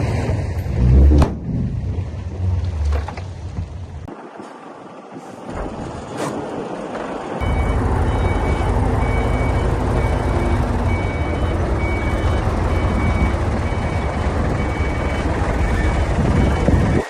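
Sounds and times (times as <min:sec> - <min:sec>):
diesel engine running: 0:06.6 - 0:17.0
reversing alarm beeping: 0:07.4 - 0:17.0.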